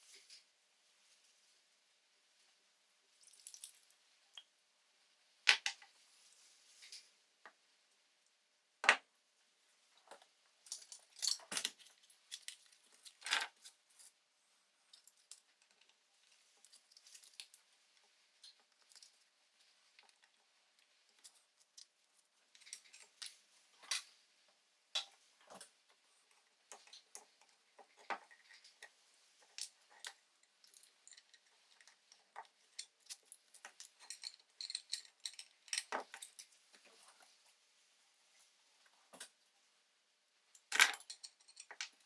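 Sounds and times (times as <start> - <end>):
small metal parts clinking: 3.2 - 3.9, 10.7 - 14.2, 28.0 - 36.5, 40.6 - 42.0.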